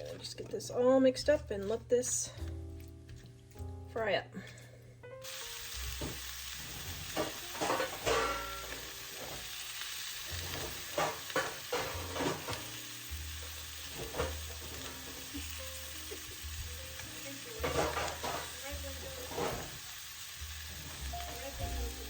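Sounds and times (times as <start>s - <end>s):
chicken and onions sizzling in a pan: 5.2s - 22.0s
utensil scraping and knocking a pan: 6.0s - 9.5s, 10.3s - 12.7s, 13.9s - 15.3s, 17.6s - 19.8s.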